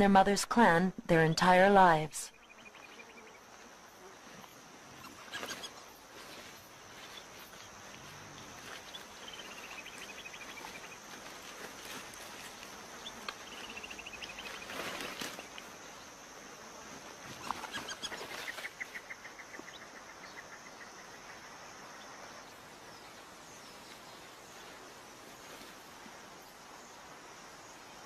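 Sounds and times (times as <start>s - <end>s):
soft rustles: 5.3s - 15.8s.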